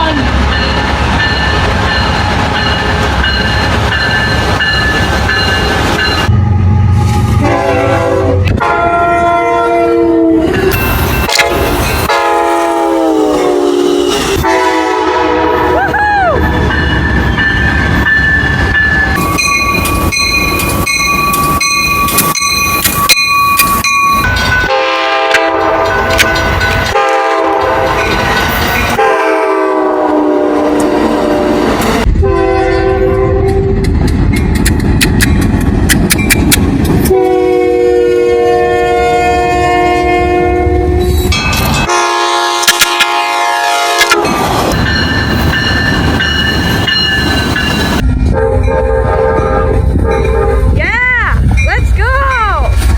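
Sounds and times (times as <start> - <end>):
rail wheel clatter: 0.0 - 6.4, 10.5 - 12.6, 15.8 - 29.1, 33.4 - 37.3, 41.0 - 52.9
rumble of passing trains: 0.0 - 52.9
locomotive air horns: 6.3 - 15.9, 24.7 - 26.2, 26.9 - 28.0, 29.0 - 33.8, 37.1 - 41.2, 41.8 - 44.4, 48.3 - 50.8.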